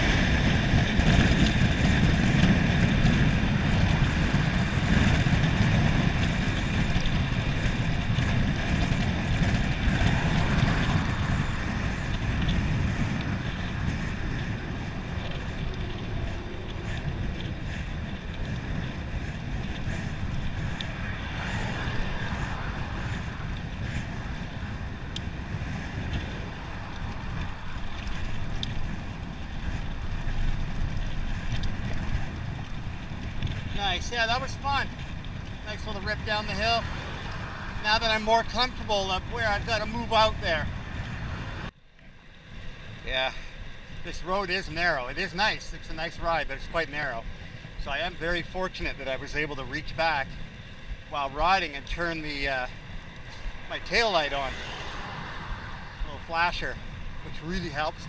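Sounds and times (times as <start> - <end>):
bicycle tyre noise: 0.0 - 58.0
wind rushing over microphone: 0.0 - 58.0.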